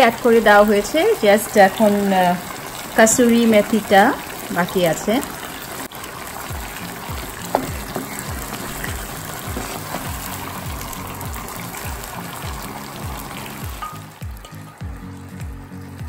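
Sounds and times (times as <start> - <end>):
chicken sizzling in oil: 0.0 - 16.0
background music with beat: 6.5 - 16.0
wooden spatula stirring: 7.2 - 10.9
spatula knock: 7.5 - 10.1.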